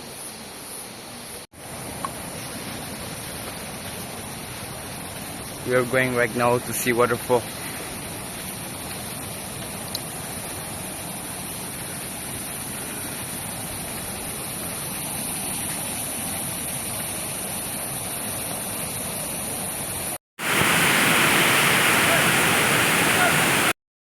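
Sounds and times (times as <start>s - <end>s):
waterfall rushing: 20.4s - 23.8s.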